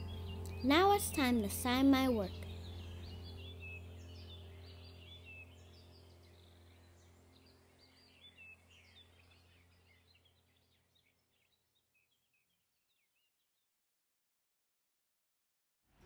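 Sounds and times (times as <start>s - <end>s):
low steady hum: 0.0s - 11.6s
faint birdsong chirps: 0.0s - 13.5s.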